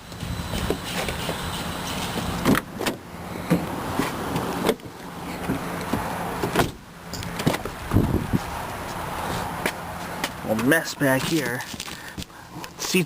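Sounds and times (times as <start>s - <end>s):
steady low hum: 0.0s - 12.9s
car doors knocking and clicking: 2.4s - 3.7s, 4.3s - 8.1s.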